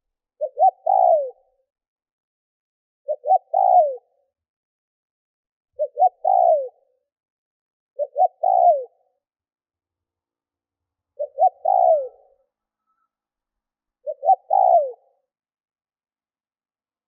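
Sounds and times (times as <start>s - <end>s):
dove cooing: 0.4s - 1.6s, 3.1s - 4.2s, 5.8s - 7.0s, 8.0s - 9.1s, 11.2s - 12.5s, 14.0s - 15.2s.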